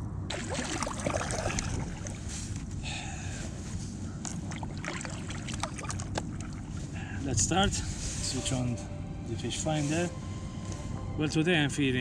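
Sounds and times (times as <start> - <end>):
water sloshing against kayak hull: 0.3 - 2.8, 3.4 - 7.1.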